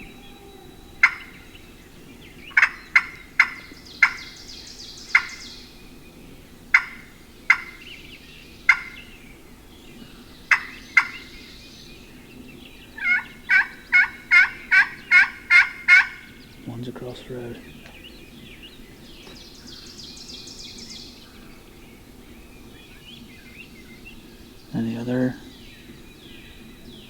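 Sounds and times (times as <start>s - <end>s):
turkey clucking: 0.0s - 1.6s, 2.4s - 4.4s, 5.1s - 5.4s, 6.7s - 7.9s, 8.7s - 9.0s, 10.5s - 11.3s, 13.0s - 18.0s
turkey yelping: 0.0s - 1.7s, 2.4s - 4.4s, 5.1s - 5.4s, 6.7s - 7.8s, 8.7s - 9.0s, 10.5s - 11.2s, 13.0s - 16.4s.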